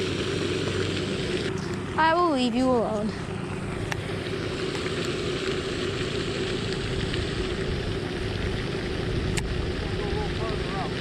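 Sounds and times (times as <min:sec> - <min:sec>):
motor rumble and hum: 0:00.0 - 0:11.0.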